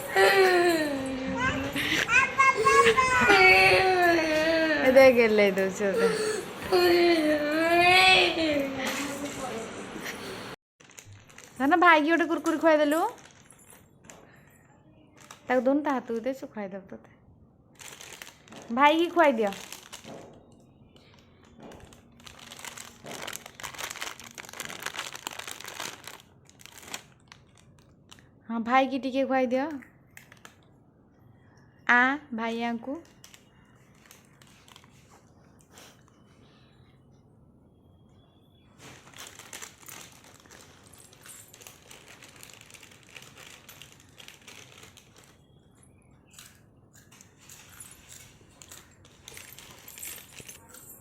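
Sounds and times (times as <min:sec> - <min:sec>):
plastic snack packet crinkling: 0:10.8 - 0:13.8, 0:15.1 - 0:15.7, 0:17.7 - 0:28.3, 0:30.2 - 0:30.7, 0:33.0 - 0:35.1, 0:38.8 - 0:45.6, 0:46.2 - 0:50.6.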